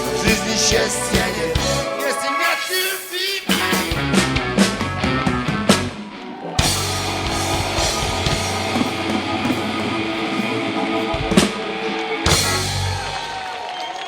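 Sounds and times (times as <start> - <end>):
live rock band playing: 0.0 - 13.7
heavy drum and cymbal hits: 6.6 - 10.0, 12.3 - 13.4.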